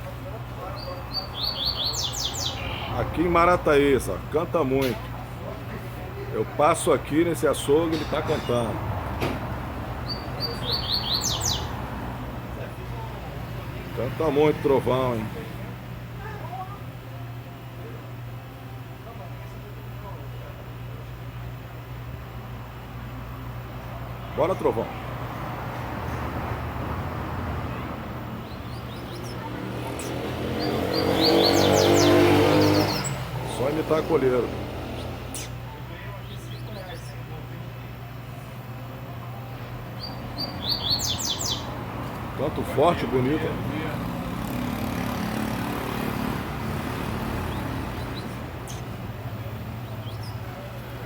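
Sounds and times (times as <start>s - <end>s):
road traffic rumble: 0.0s - 51.0s
bird chirping: 0.7s - 3.1s, 10.0s - 11.8s, 28.4s - 33.3s, 40.0s - 41.8s, 47.4s - 49.0s, 49.8s - 50.5s
engine humming: 20.8s - 51.0s.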